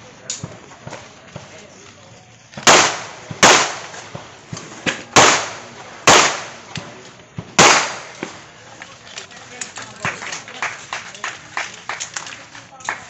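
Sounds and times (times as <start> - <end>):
handgun shots echoing: 2.6 - 4.0, 4.9 - 6.9.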